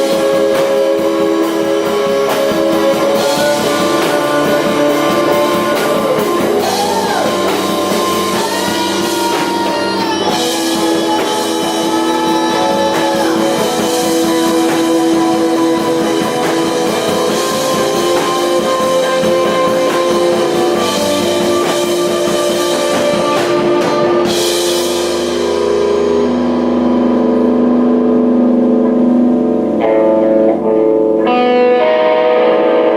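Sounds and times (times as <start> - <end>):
drum kit: 0.0 - 32.9
electric guitar bending notes: 0.0 - 32.9.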